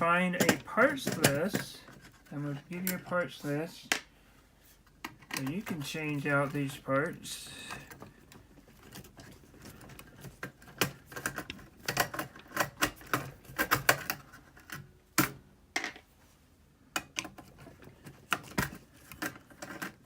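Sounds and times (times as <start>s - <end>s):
small parts being handled: 17.0s - 20.0s.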